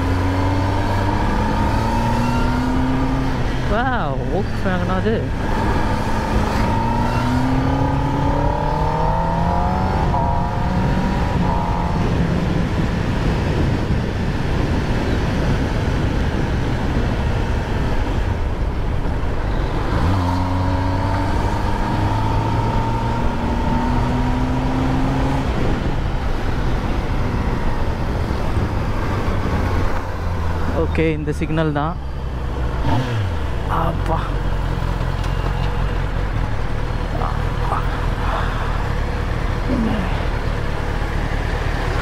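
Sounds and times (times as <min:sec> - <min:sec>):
motorcycle engine revving: 0:00.0 - 0:03.8, 0:04.6 - 0:13.8, 0:19.4 - 0:30.8, 0:32.4 - 0:42.0
wind and road noise: 0:00.0 - 0:42.0.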